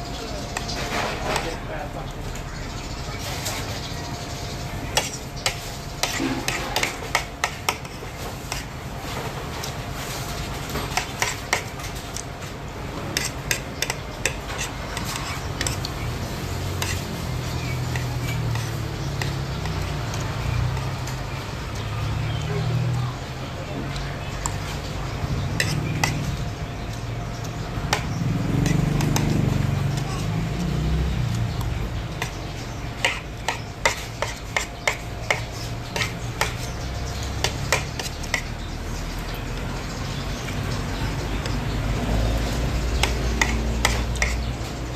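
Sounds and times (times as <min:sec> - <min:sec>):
cutlery tapping a plate: 0:05.0 - 0:07.9, 0:25.6 - 0:26.3.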